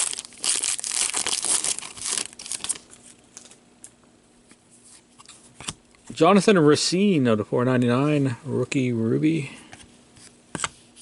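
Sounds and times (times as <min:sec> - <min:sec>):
crinkly wrapper tearing: 0:00.0 - 0:03.6.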